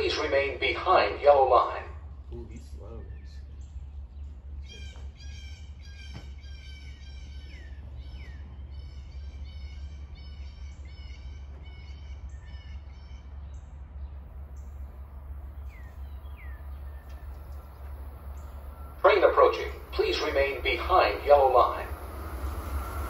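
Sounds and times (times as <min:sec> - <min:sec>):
steady low rumble: 0:00.0 - 0:23.0
bird calling high notes: 0:14.5 - 0:23.0.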